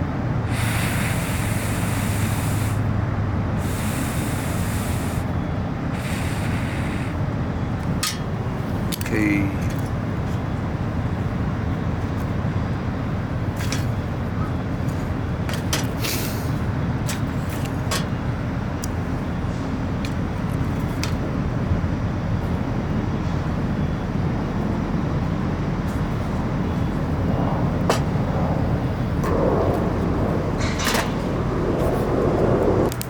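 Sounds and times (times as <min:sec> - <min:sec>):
campfire crackling: 0:26.1 - 0:33.0.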